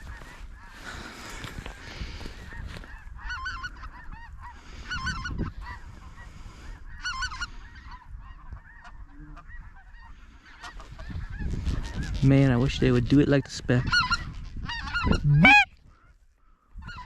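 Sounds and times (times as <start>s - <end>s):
geese honking: 2.5s - 12.2s, 13.8s - 15.7s.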